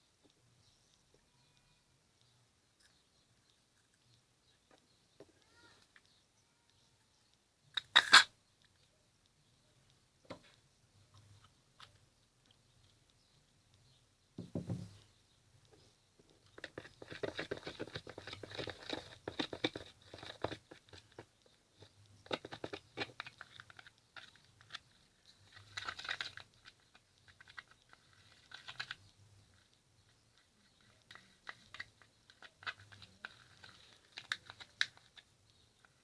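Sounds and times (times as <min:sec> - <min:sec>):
thump: 0:14.4 - 0:15.0.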